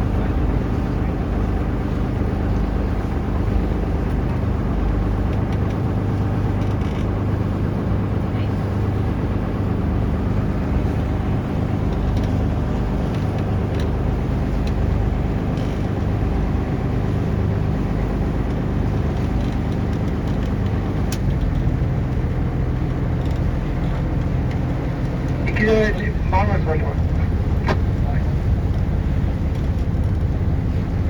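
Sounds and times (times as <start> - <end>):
boat engine droning: 0.0 - 31.0
water rushing: 22.4 - 31.0.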